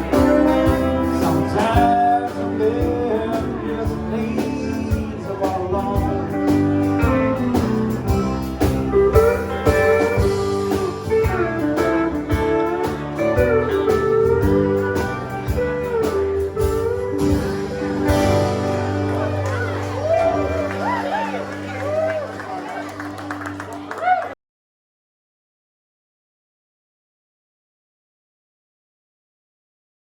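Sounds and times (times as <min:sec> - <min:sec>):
bass guitar: 0:00.0 - 0:24.3
drums: 0:00.0 - 0:24.4
lead guitar solo: 0:06.9 - 0:24.3.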